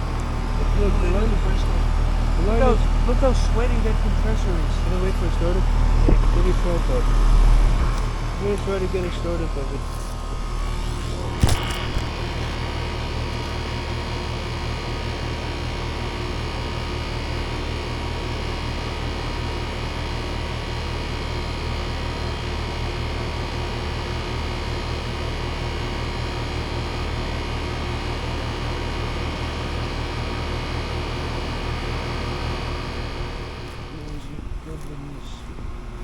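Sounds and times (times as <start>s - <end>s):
condenser fan whoosh: 0.0s - 16.1s, 31.3s - 36.0s
compressor hum: 0.0s - 36.0s.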